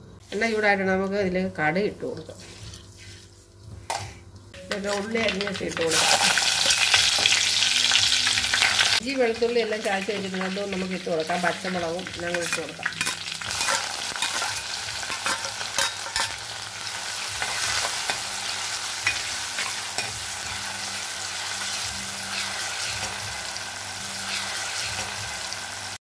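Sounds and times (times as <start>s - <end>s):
food sizzling in hot oil: 4.6s - 26.0s
steel ladle scraping pot: 12.4s - 16.4s.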